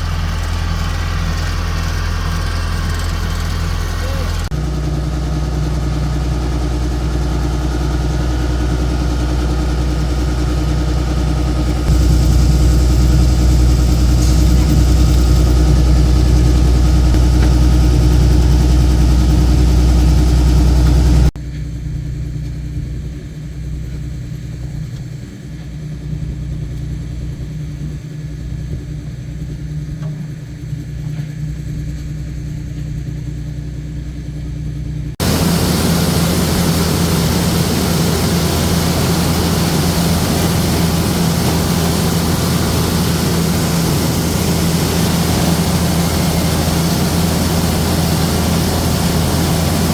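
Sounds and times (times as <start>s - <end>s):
harvesting machine engine running: 0.0s - 21.4s, 35.2s - 49.9s
low drone of machinery: 0.0s - 49.9s.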